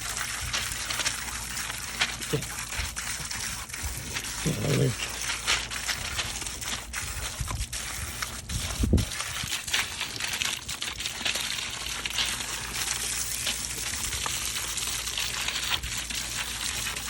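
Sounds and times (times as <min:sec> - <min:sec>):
garden hose spraying water: 0:00.0 - 0:17.0.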